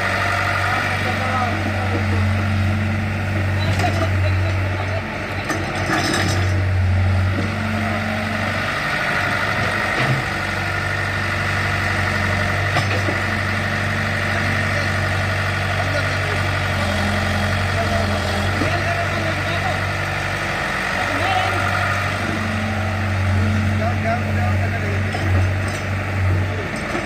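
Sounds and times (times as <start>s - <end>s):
tractor diesel engine idling: 0.0s - 27.0s
voices in background: 0.5s - 6.6s, 14.2s - 27.0s.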